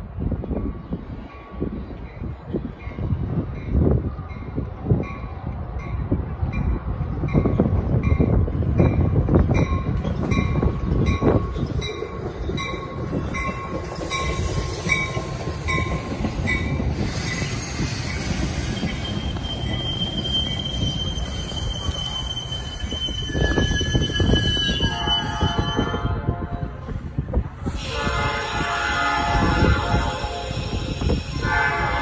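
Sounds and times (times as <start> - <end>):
train wheels rumbling on rails: 0.0 - 32.0
wheels squealing: 11.4 - 25.8.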